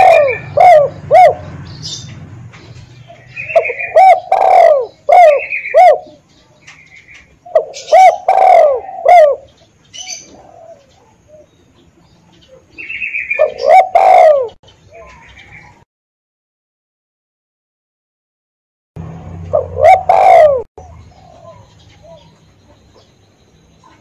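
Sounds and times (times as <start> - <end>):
dove cooing: 0.0 - 2.1, 3.0 - 11.6, 12.4 - 15.8, 19.5 - 23.1.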